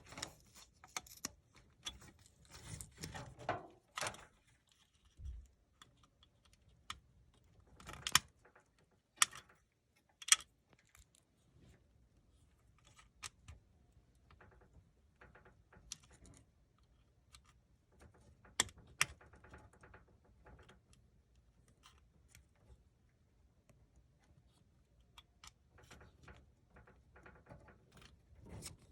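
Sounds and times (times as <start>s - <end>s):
handling noise of wire connectors: 0.0s - 6.2s.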